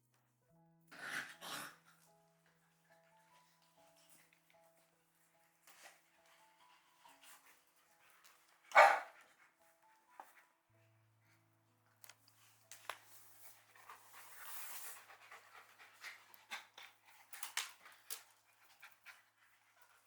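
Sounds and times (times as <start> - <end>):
dog panting: 13.4 - 20.0.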